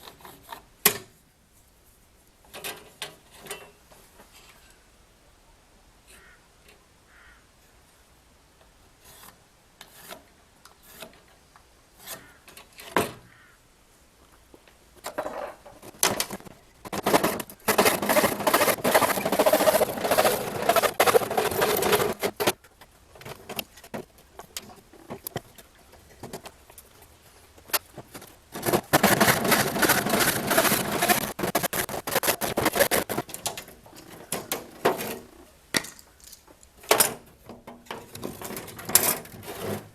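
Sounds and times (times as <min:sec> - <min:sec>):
scraping on wood: 0:15.1 - 0:22.6, 0:27.7 - 0:35.3.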